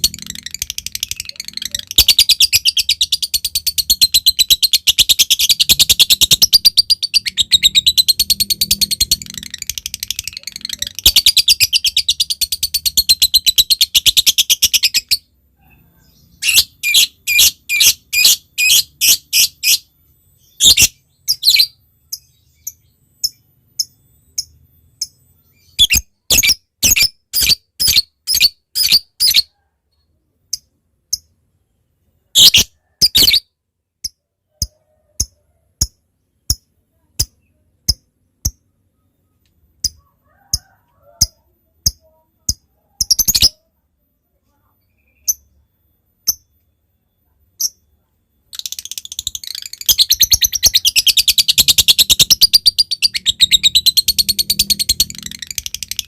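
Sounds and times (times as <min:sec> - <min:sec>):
lovebird chattering trill: 0:00.0 - 0:15.3, 0:48.5 - 0:56.0.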